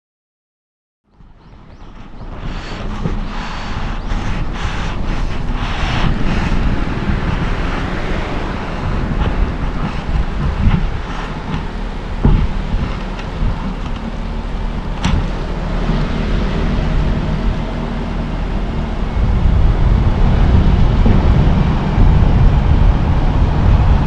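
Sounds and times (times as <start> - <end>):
car road and engine rumble: 1.1 - 24.0
knocks from road bumps: 1.2 - 15.4.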